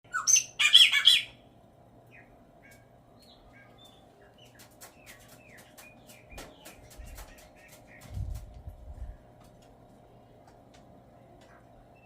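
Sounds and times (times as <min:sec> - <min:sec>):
blackbird singing and chirping: 0:00.1 - 0:01.4.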